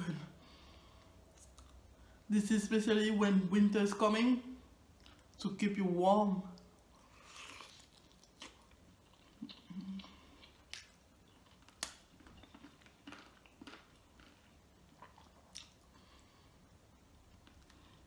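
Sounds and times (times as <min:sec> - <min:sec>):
chewing with lip-smacks: 0:01.3 - 0:01.8, 0:06.5 - 0:16.3.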